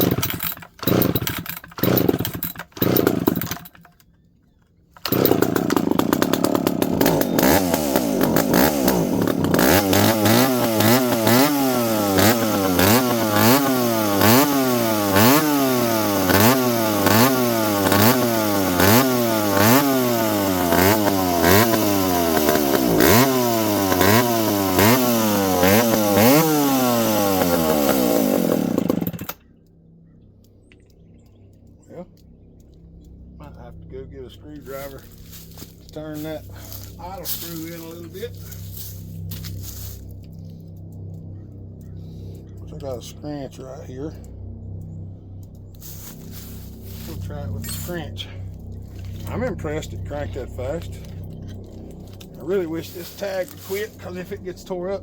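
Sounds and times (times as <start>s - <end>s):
chainsaw engine hunting idle: 0.0s - 4.2s, 4.9s - 30.2s, 31.1s - 55.0s
chainsaw pull cord: 0.0s - 4.2s, 4.9s - 29.4s, 34.6s - 40.2s, 50.7s - 54.7s.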